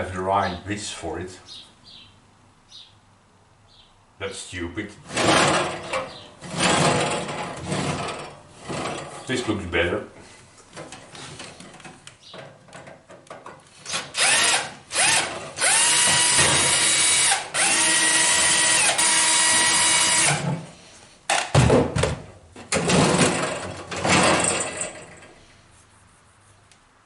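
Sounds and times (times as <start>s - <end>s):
power drill whining: 13.9s - 20.5s.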